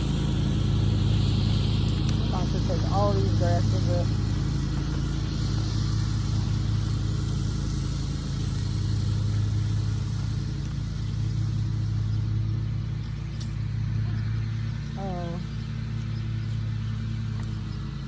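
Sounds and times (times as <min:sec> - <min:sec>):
engine running steadily: 0:00.0 - 0:18.0
faint light ticks: 0:13.3 - 0:13.6.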